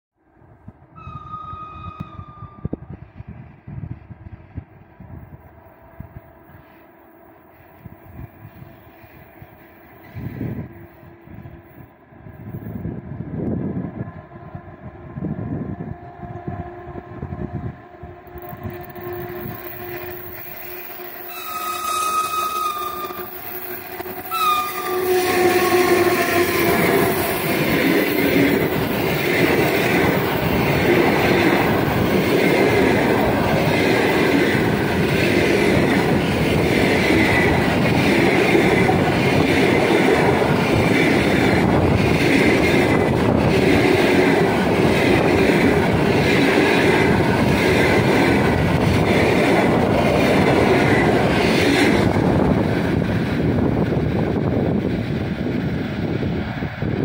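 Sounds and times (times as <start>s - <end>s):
electric locomotive passing: 0.2s - 57.0s
train horn: 0.9s - 2.9s, 14.0s - 27.2s.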